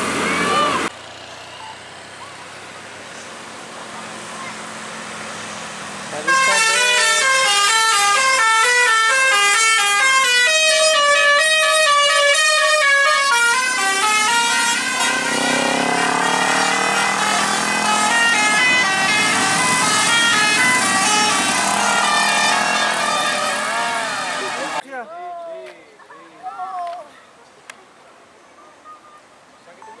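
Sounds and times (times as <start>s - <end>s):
wavering horn with noise: 0.0s - 0.9s, 6.2s - 24.8s
bus musical horn tune: 6.2s - 24.8s.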